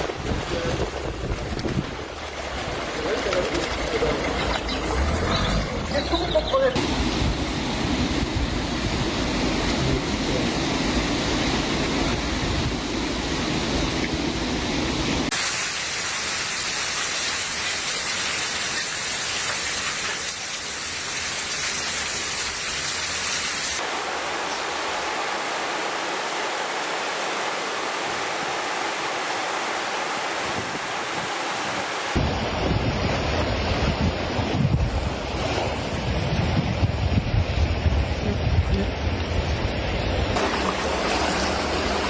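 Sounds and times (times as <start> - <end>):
storm rain rushing: 0.0 - 4.6, 6.8 - 16.0, 23.8 - 42.0
heavy low rumble: 6.8 - 15.3.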